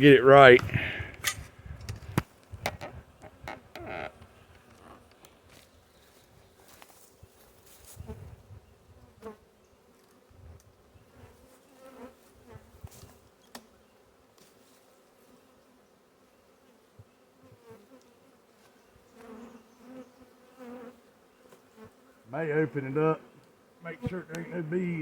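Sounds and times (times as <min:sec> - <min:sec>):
bee swarm buzzing: 0:17.3 - 0:25.0.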